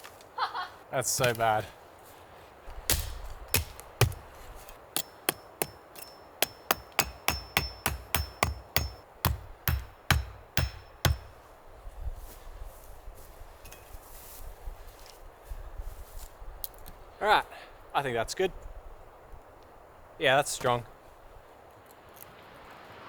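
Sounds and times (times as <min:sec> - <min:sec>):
hammer knocking a stake: 0:02.9 - 0:11.4
faint high metallic ring: 0:05.0 - 0:09.0, 0:13.6 - 0:14.1.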